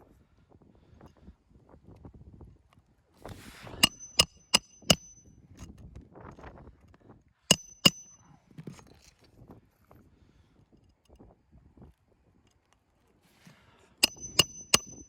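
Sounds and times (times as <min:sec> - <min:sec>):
hammer striking roofing nails: 0:03.8 - 0:05.2, 0:07.5 - 0:08.1, 0:14.0 - 0:15.0.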